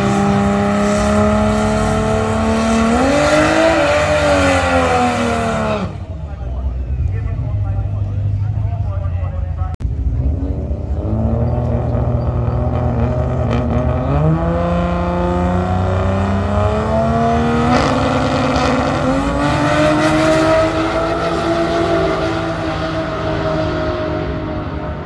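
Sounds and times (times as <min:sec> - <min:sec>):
drag racing car engine accelerating: 0:00.0 - 0:06.2, 0:09.8 - 0:25.0.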